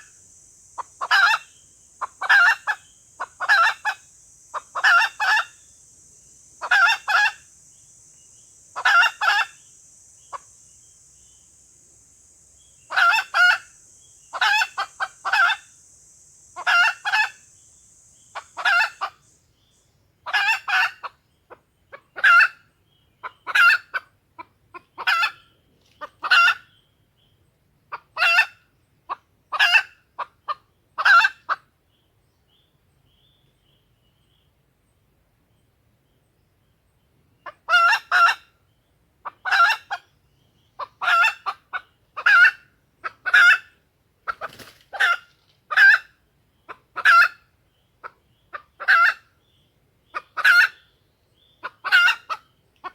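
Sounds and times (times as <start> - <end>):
hen clucking: 0.0 - 5.7, 6.5 - 7.6, 8.7 - 10.6, 12.9 - 17.5, 18.3 - 19.2, 20.2 - 22.6, 23.2 - 25.4, 26.0 - 26.7, 27.9 - 31.6, 37.4 - 38.4, 39.2 - 40.1, 40.8 - 49.3, 50.1 - 50.8, 51.6 - 52.9
steady high hiss: 0.0 - 21.4.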